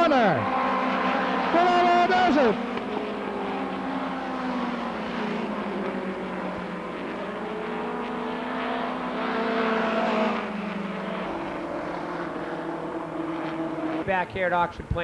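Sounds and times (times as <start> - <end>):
race car engines running: 0.0 - 15.0.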